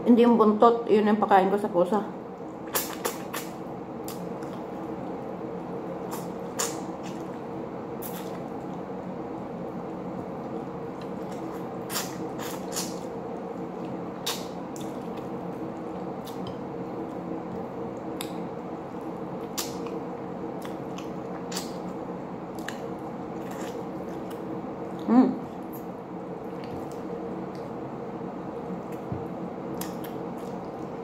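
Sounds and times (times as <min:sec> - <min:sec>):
steady background hum: 0:00.0 - 0:31.0
wet chewing and lip-smacking: 0:02.6 - 0:04.7, 0:06.0 - 0:08.9, 0:10.4 - 0:18.4, 0:19.4 - 0:20.0, 0:20.6 - 0:27.8, 0:28.8 - 0:31.0.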